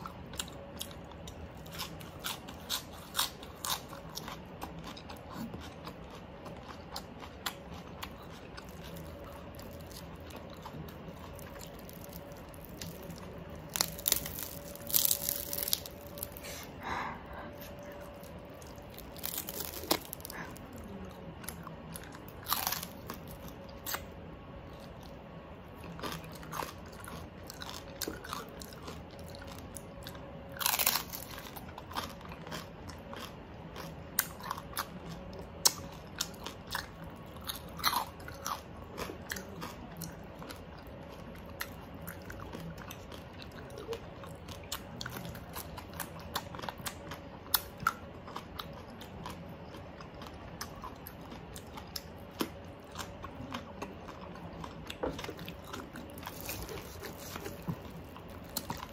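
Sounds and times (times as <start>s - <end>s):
crunchy chewing of pork skin: 0.0s - 58.9s.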